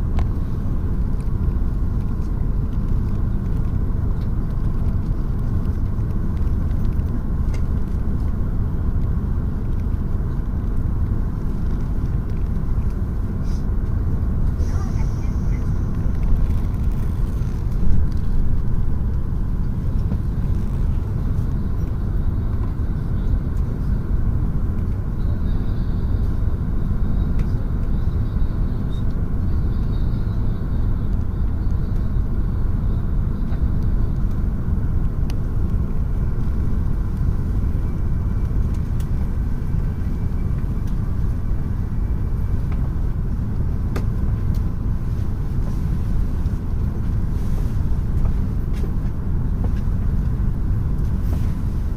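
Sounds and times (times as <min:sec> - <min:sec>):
train rumble from inside cabin: 0:00.0 - 0:51.9.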